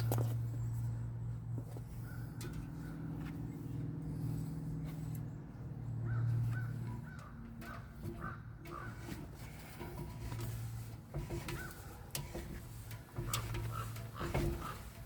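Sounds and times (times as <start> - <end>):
crows cawing: 6.0 - 8.9.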